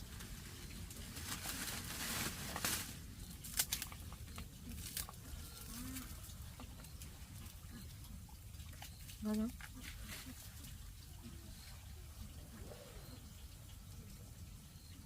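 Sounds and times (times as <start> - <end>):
bags rustling and crinkling: 0.0 - 4.0.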